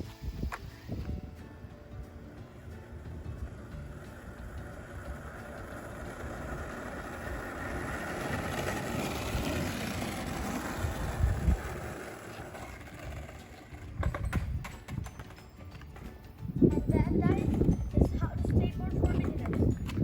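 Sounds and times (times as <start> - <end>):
skateboard wheels rolling: 0.0 - 20.0
skateboard knocks and clatters: 2.9 - 16.3.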